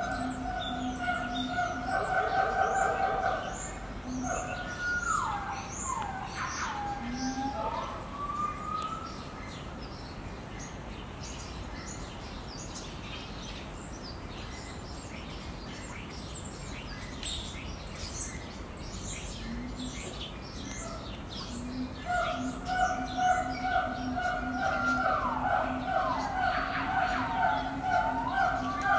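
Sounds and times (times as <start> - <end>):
small birds chirping: 0.0 - 28.9
steady background noise: 0.0 - 28.9.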